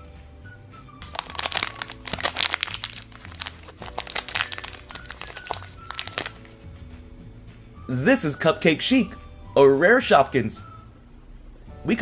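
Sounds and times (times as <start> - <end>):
soft background music: 0.0 - 12.0
packaging crinkling: 1.0 - 6.6.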